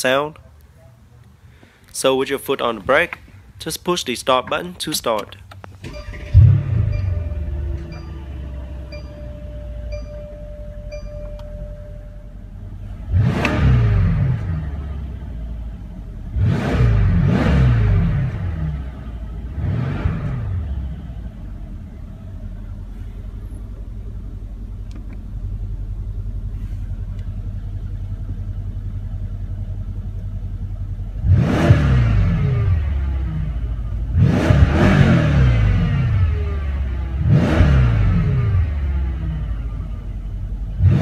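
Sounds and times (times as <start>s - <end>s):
car engine idling: 5.4s - 41.0s
car engine revving: 5.8s - 26.9s, 30.8s - 41.0s.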